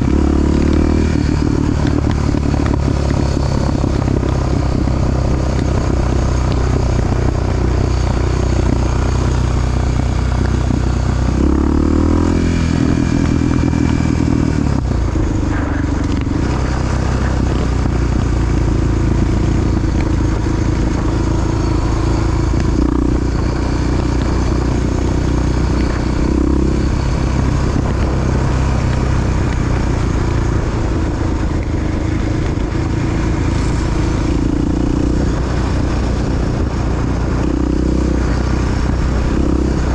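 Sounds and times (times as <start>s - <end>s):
dirt bike engine revving: 0.0s - 2.7s, 10.6s - 29.2s.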